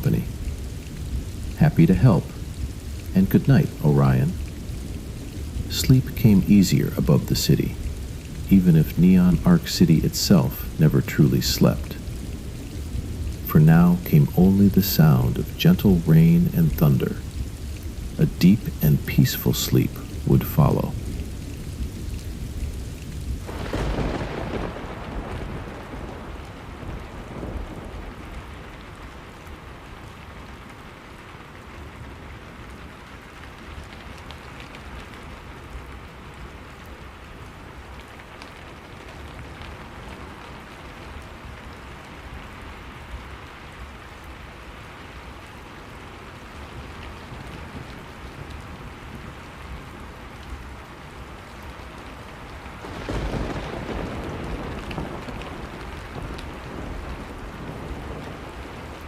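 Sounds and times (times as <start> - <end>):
steady rain falling: 0.0 - 59.0
thunder rolling: 23.4 - 28.7, 52.8 - 59.0.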